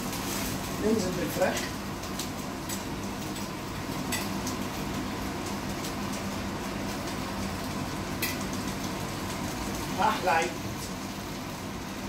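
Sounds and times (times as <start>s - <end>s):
chicken sizzling in a pan: 0.0s - 12.0s.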